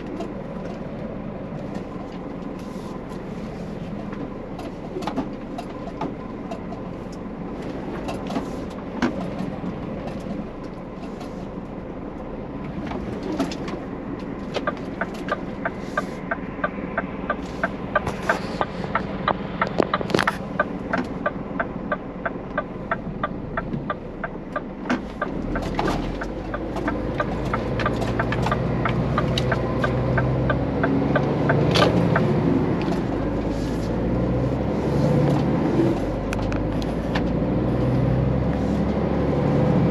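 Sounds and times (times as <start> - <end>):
truck diesel engine humming: 0.0 - 39.9
rapid even ticking: 14.6 - 32.4.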